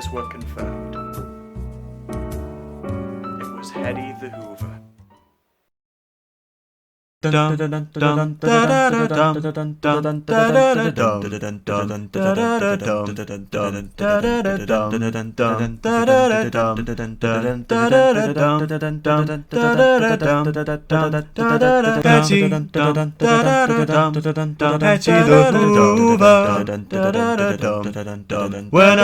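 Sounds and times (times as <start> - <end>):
held backing chord: 0.0 - 5.1, 25.0 - 26.4
man singing: 7.2 - 29.0.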